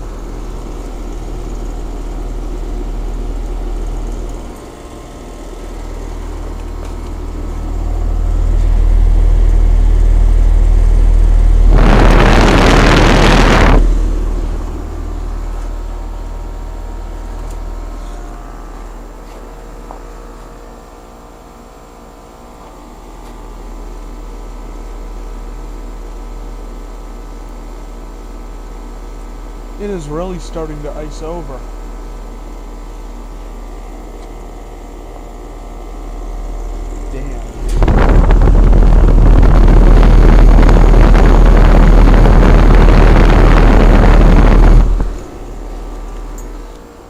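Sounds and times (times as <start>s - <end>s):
heat pump compressor hum: 0.0s - 47.0s
heat pump fan noise: 0.0s - 47.0s
wind buffeting microphone: 37.7s - 45.2s.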